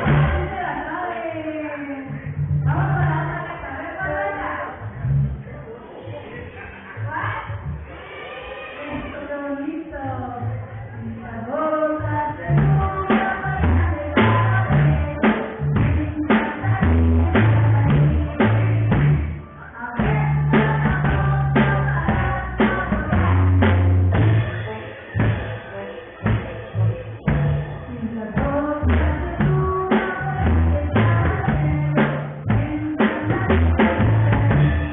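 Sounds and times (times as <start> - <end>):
band playing a song: 0.0 - 0.6, 12.5 - 34.9
drum kit beat: 0.0 - 0.9, 12.4 - 34.9
bass line: 0.0 - 34.9.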